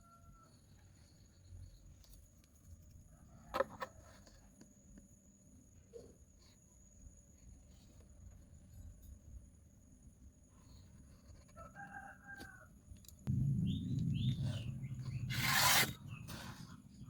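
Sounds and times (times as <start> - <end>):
rooster crowing: 11.6 - 12.7
low steady hum: 13.2 - 17.0
bird chirps: 13.5 - 16.4.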